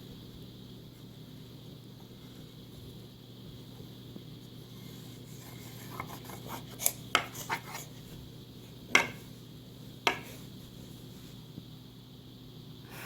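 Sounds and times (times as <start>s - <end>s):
sharp taps: 10.1s - 10.4s.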